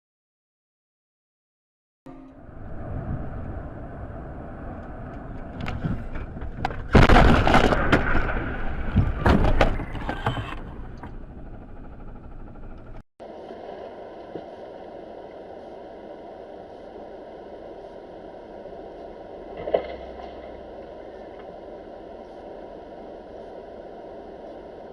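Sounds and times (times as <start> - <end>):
road and engine noise: 2.4 - 6.9
car crash with crunching: 6.7 - 10.3.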